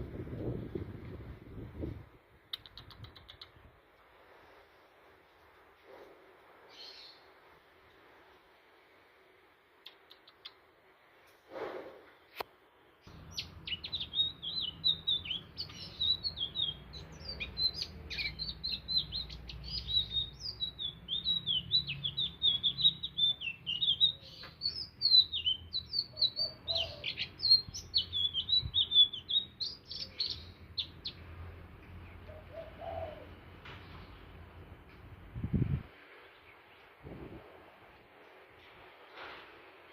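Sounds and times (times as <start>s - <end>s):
bird singing high twittering song: 13.0s - 33.3s.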